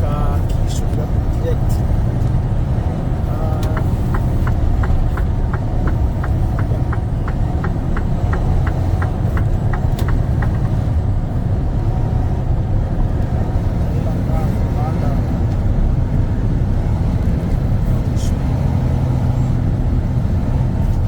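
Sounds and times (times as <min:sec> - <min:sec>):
road noise: 0:00.0 - 0:21.0
truck engine drone: 0:00.0 - 0:21.0
turn signal clicking: 0:03.4 - 0:11.3.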